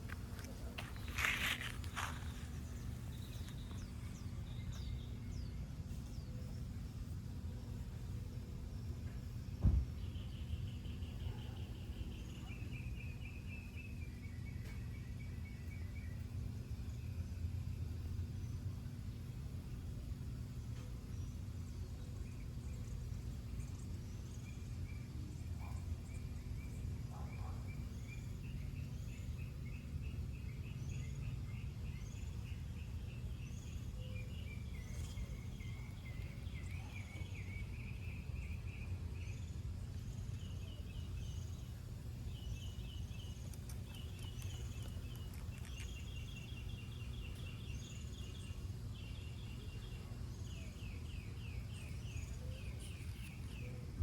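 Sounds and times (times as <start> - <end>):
steady low rumble: 0.0 - 9.3
small birds chirping: 0.0 - 54.0.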